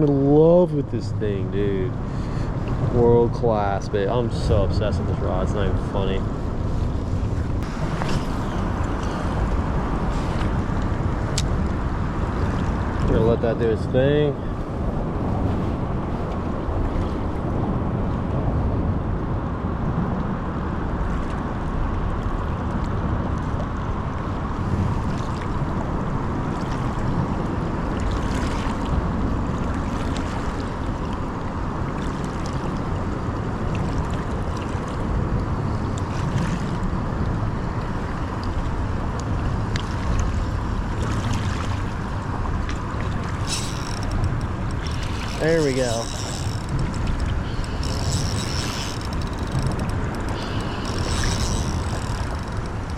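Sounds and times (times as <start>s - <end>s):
river water: 0.0s - 52.9s
wind rumbling on microphone: 0.0s - 52.9s
faint ticks: 43.4s - 52.9s.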